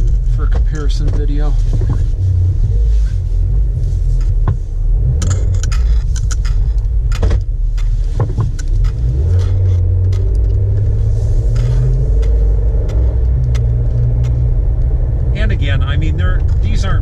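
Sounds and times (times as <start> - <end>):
engine and road rumble: 0.0 - 17.0
sharp clicks and jangling rattles: 5.1 - 14.4.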